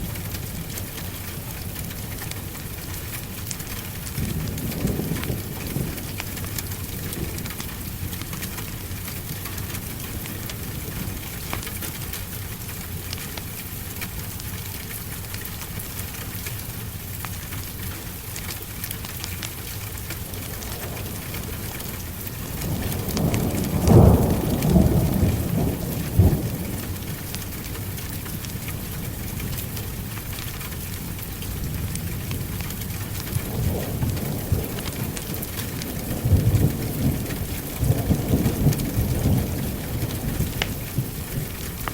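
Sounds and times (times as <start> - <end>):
heavy rain: 0.0 - 41.9
thunder rolling: 20.3 - 27.7, 33.1 - 41.7.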